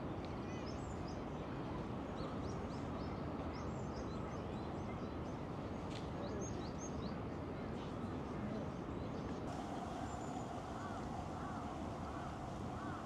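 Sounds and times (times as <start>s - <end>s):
low city hum: 9.5s - 13.0s
small birds chirping: 9.6s - 13.0s.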